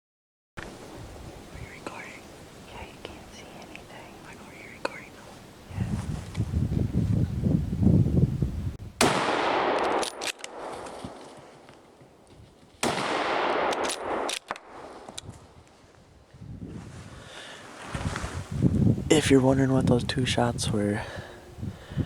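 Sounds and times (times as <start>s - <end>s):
rifle shots with echo: 9.0s - 11.3s, 12.8s - 14.8s
sharp clicks: 9.7s - 11.0s, 13.6s - 15.3s.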